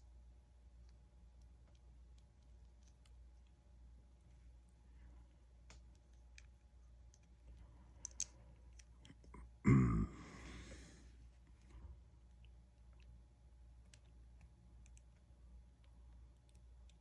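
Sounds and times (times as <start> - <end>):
low voiced grunt: 9.6 - 11.0
breathy exhale: 9.7 - 11.1.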